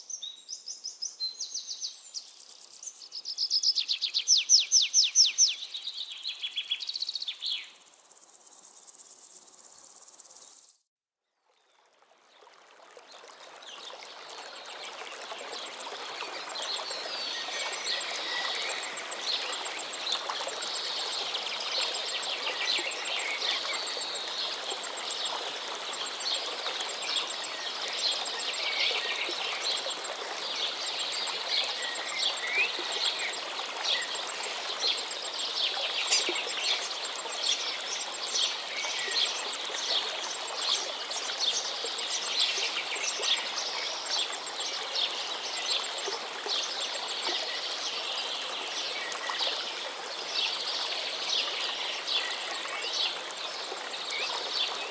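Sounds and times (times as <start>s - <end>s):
small birds chirping and trilling: 0.1s - 10.8s.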